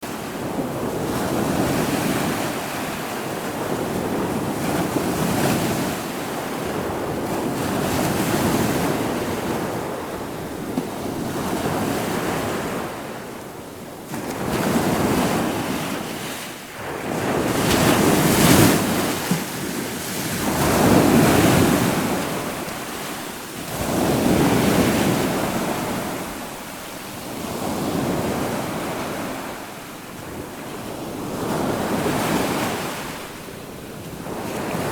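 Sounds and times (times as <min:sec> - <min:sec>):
wind on microphone: 0:00.1 - 0:34.9
waves breaking: 0:14.2 - 0:34.9.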